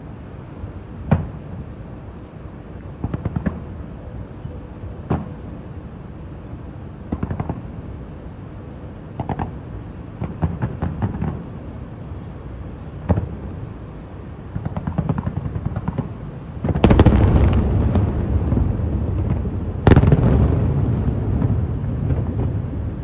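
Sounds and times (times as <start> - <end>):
firework pops and crackles: 2.9 - 3.7, 7.1 - 7.6, 9.2 - 9.6, 10.2 - 11.5, 13.0 - 13.4, 14.5 - 22.8
heavy firework booms echoing: 16.6 - 22.9.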